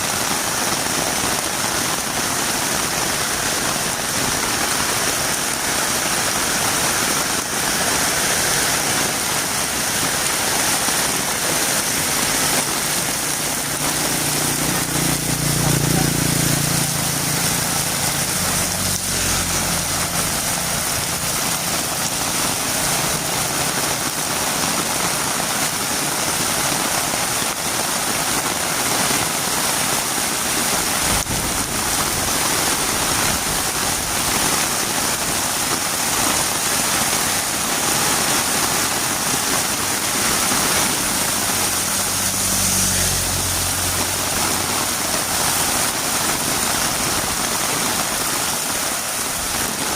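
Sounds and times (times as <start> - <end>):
heavy rain: 0.0 - 49.9
low engine hum: 12.0 - 24.1, 40.8 - 47.4.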